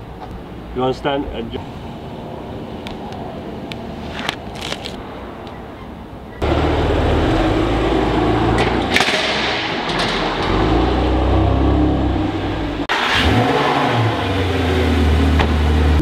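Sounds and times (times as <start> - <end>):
decal crackling as peeled: 4.2 - 5.0.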